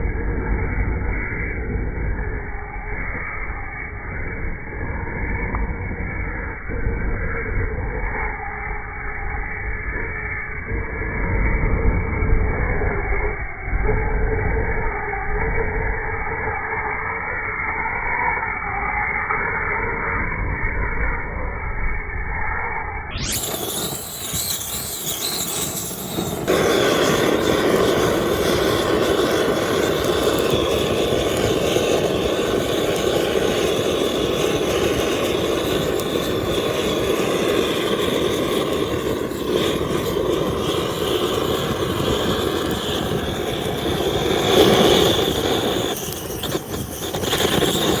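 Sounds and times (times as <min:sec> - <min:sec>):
gas torch flame hissing: 0:23.2 - 0:48.0.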